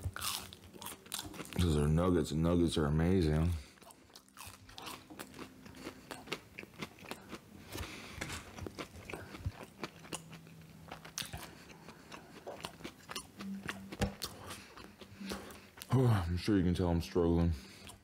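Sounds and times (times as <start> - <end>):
crunchy chewing: 0.0 - 1.9, 3.6 - 15.9.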